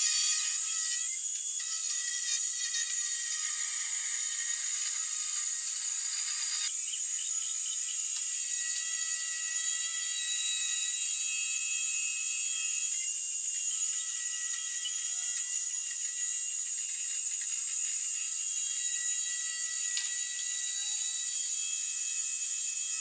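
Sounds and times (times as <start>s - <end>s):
cutting bit milling plastic sheet: 0.0s - 11.2s
spindle motor high-pitched whine: 0.0s - 23.0s.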